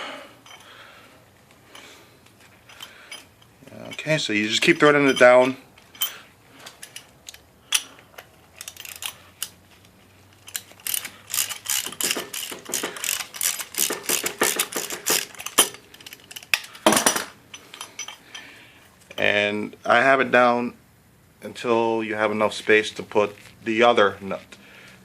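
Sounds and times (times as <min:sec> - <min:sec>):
metal nut clicking and rattling: 0:00.4 - 0:00.8, 0:01.7 - 0:18.5.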